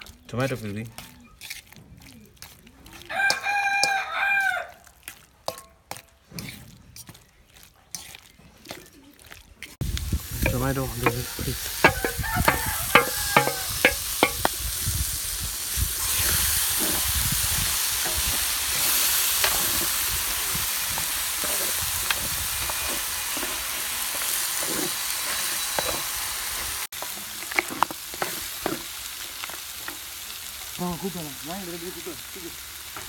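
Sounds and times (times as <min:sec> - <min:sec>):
wooden spatula scraping: 0:01.3 - 0:04.0, 0:10.4 - 0:14.5, 0:16.3 - 0:17.2, 0:18.0 - 0:20.1, 0:20.9 - 0:25.5, 0:27.0 - 0:30.0
food sizzling in a wok: 0:03.1 - 0:04.7, 0:09.8 - 0:33.0
spatula knocking against pan: 0:10.5 - 0:14.5.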